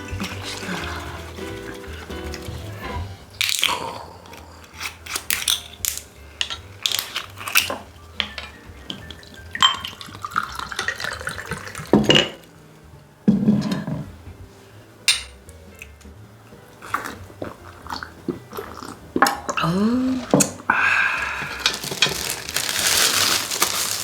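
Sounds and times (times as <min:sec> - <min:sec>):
crunchy chewing: 0:00.0 - 0:08.1, 0:16.8 - 0:24.0
clinks of dishes or utensils: 0:04.8 - 0:11.2, 0:11.8 - 0:12.5, 0:15.1 - 0:15.4.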